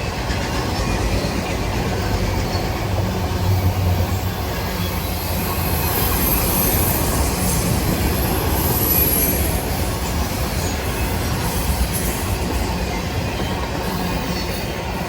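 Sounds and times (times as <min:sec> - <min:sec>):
train wheels rumbling on rail: 0:00.0 - 0:15.0
high wheel squeal: 0:04.5 - 0:09.9.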